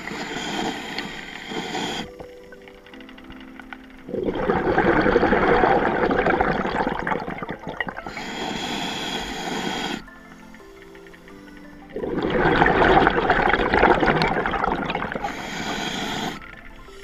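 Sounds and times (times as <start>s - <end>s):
soft background music: 0.0s - 17.0s
air bubbles rushing underwater: 4.0s - 8.3s, 11.8s - 17.0s.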